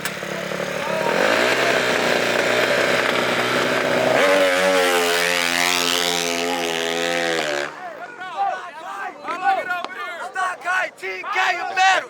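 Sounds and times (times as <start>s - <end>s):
small racing engine buzzing: 0.0s - 7.8s.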